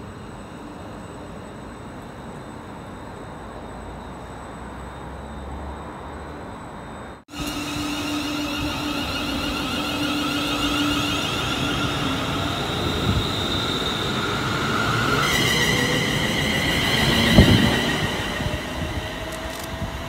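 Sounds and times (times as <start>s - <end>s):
train rumble: 7.3s - 20.0s
whining wheel and motor tones: 7.3s - 20.0s.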